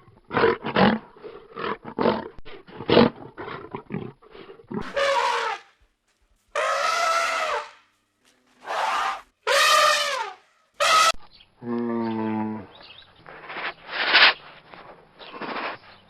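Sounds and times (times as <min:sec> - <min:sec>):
low steady animal call: 0:00.0 - 0:05.7, 0:06.6 - 0:07.9, 0:08.6 - 0:14.5
animal calls falling in pitch: 0:06.6 - 0:07.8, 0:08.6 - 0:11.2.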